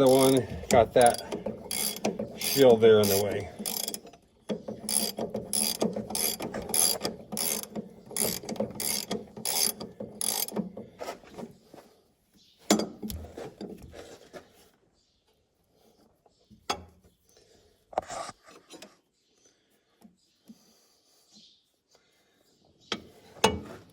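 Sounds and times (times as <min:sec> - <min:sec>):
ratchet wrench clicking: 0:00.0 - 0:10.7.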